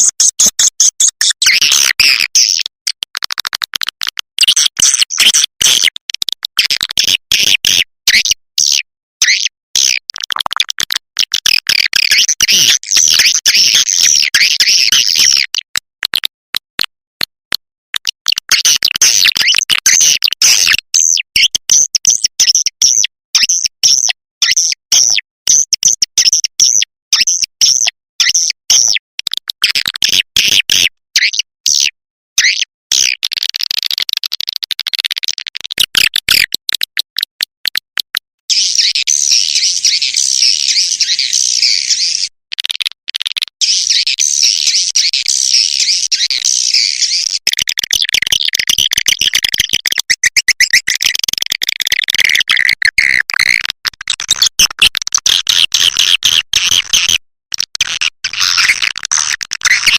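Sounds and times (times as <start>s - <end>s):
swiftlets twittering and chirping: 0.0s - 2.6s, 38.5s - 42.3s, 43.6s - 51.0s.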